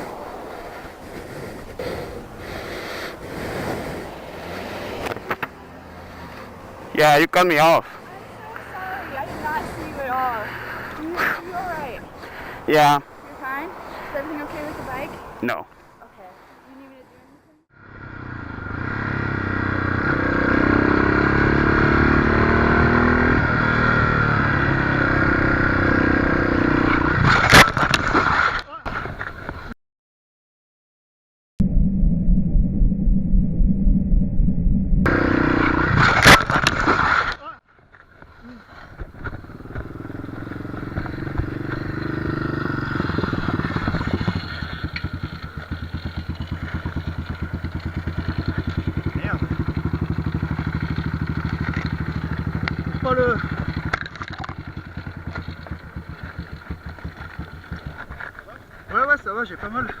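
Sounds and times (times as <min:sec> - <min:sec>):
motorcycle engine running: 0:17.8 - 0:27.1, 0:31.6 - 0:36.6, 0:38.2 - 1:00.0.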